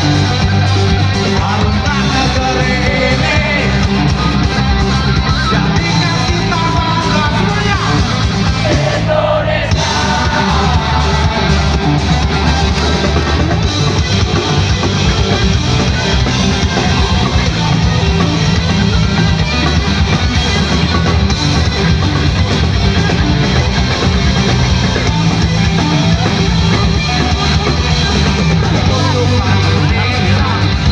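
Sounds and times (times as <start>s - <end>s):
rock band playing live: 0.0s - 30.9s
person singing: 5.8s - 13.0s, 28.7s - 30.9s.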